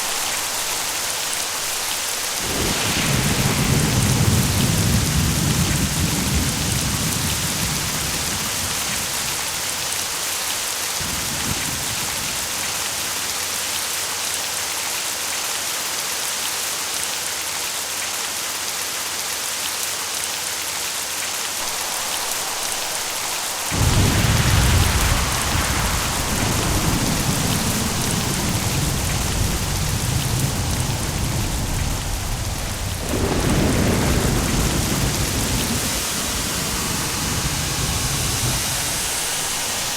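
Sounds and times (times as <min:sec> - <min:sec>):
loud thunderclap: 0:00.0 - 0:09.8, 0:11.0 - 0:12.8, 0:21.6 - 0:39.9
thunder rumbling: 0:00.0 - 0:13.1, 0:21.6 - 0:39.9
heavy rain: 0:00.0 - 0:39.9.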